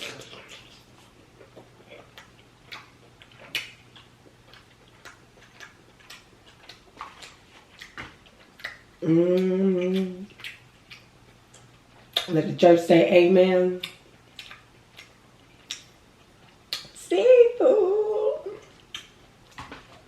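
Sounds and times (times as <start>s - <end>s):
chewing and lip-smacking: 0.0s - 12.4s, 13.8s - 17.0s, 18.6s - 20.0s
person humming mmm: 9.0s - 10.3s.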